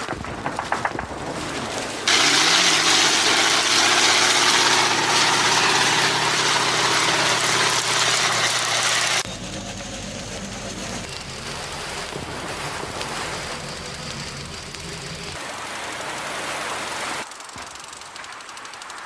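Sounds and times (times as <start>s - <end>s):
heavy engine running: 2.1s - 15.4s
sharp clicks: 17.3s - 19.0s.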